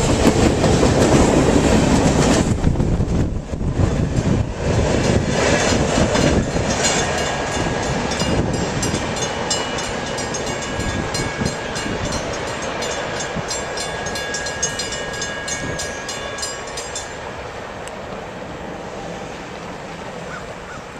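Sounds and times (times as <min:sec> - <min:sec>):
train wheels clicking over rail joints: 0:00.0 - 0:18.0
train rumble: 0:00.0 - 0:20.9.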